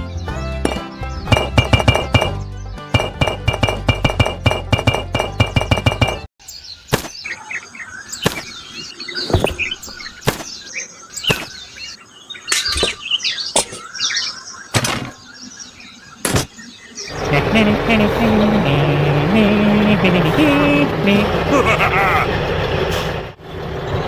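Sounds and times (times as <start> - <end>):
small birds chirping: 0.0 - 3.2, 6.4 - 18.8
background music: 0.0 - 6.2.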